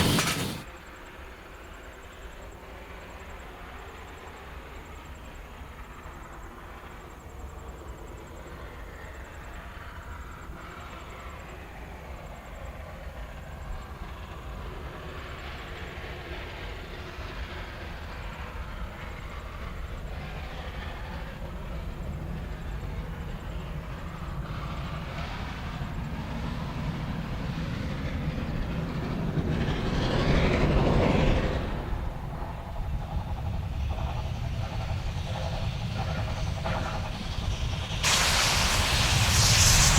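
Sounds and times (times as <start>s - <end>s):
steam train rolling past: 0.0s - 0.7s, 15.1s - 39.9s.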